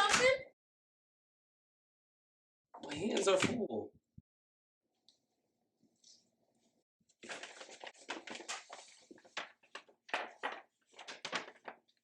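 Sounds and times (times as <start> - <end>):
rustling and knocking of handled things: 7.2 - 12.0.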